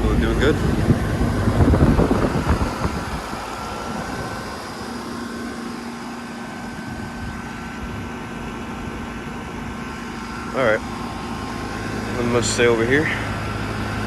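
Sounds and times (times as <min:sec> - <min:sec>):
air conditioner humming: 0:00.0 - 0:07.4.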